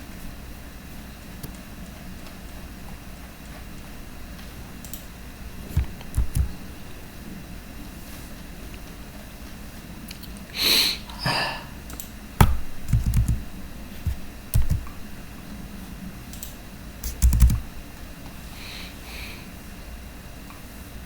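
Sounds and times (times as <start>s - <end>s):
sharp clicks: 4.8s - 5.1s, 5.8s - 6.5s, 11.9s - 13.4s, 14.0s - 15.0s, 16.3s - 17.6s
short hisses: 10.6s - 11.6s
handling noise: 12.4s - 15.3s.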